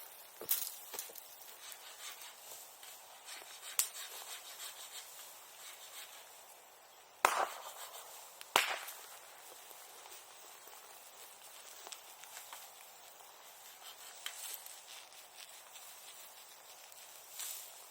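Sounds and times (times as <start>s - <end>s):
bamboo bonfire crackling: 0.0s - 17.9s
bamboo bursting with loud bangs: 7.2s - 9.6s.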